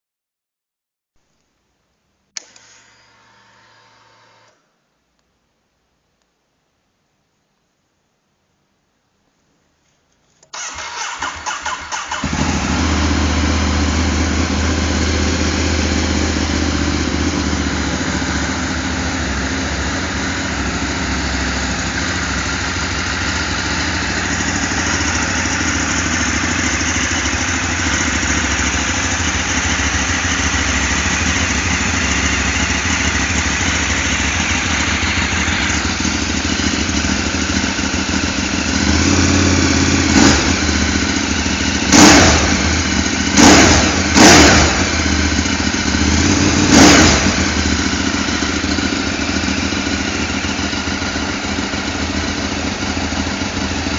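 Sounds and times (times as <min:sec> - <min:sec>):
motorcycle engine starter cranking: 0:10.5 - 0:13.1
motorcycle engine idling: 0:10.6 - 0:53.9.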